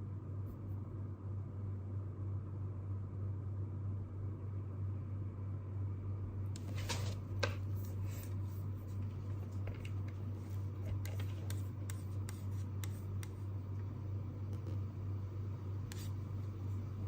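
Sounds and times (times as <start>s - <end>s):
steady low hum: 0.0s - 17.0s
paper rustle: 6.6s - 11.4s.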